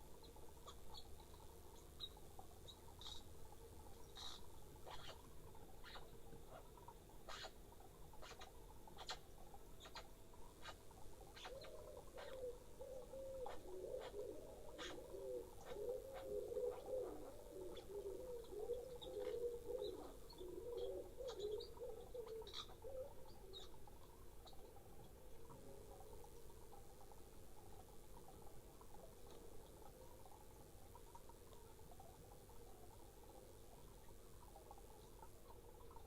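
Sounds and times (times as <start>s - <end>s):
pigeon cooing: 11.4s - 23.2s.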